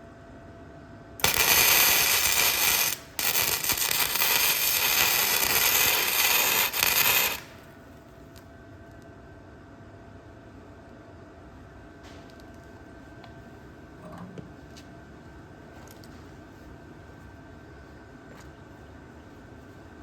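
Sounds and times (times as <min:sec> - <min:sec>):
welding arc crackling: 0:01.2 - 0:07.7.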